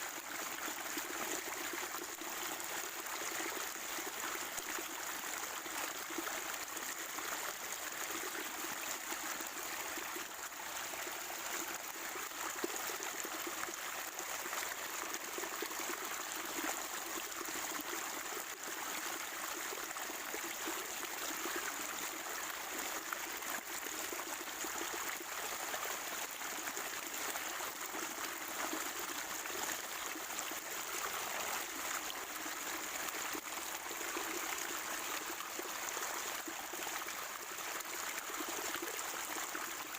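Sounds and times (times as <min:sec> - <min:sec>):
spring water trickling and gurgling: 0:00.0 - 0:39.9.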